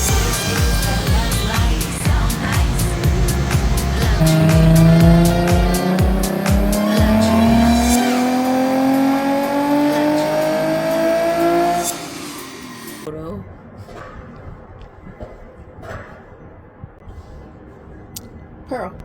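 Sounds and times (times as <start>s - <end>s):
car engine at full throttle: 0.0s - 13.1s
music with heavy beat: 0.0s - 13.1s.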